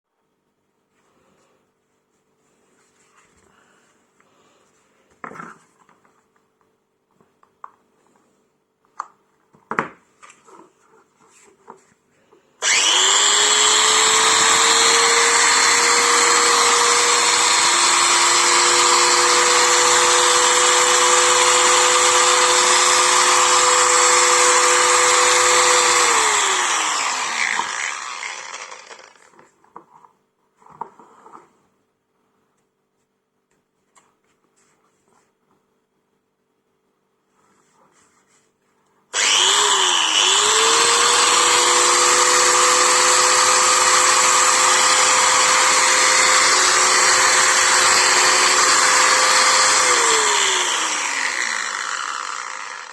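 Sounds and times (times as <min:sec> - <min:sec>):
angle grinder whining: 0:12.6 - 0:29.4, 0:39.2 - 0:52.9.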